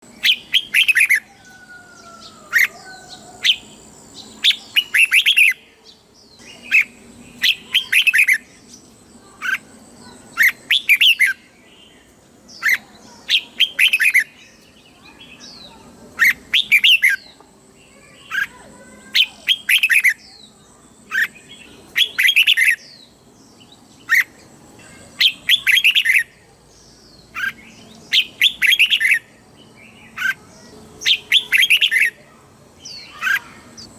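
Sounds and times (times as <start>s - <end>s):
bird singing whistled phrases: 4.4s - 5.6s, 10.3s - 11.4s, 15.0s - 17.3s, 21.1s - 23.1s, 25.2s - 26.3s, 27.4s - 29.3s, 31.0s - 32.2s.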